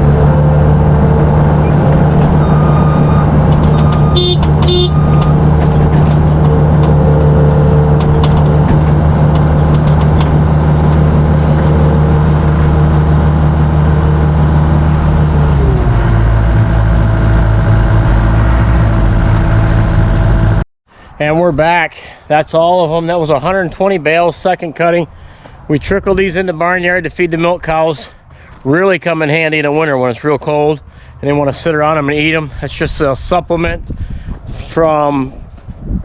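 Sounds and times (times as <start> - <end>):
large diesel engine running: 0.0 - 20.6
short beeps: 2.4 - 5.4.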